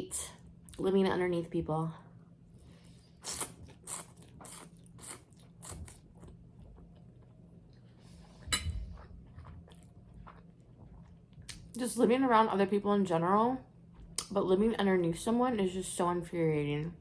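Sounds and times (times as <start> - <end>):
chewing crunchy bread: 3.2 - 11.8.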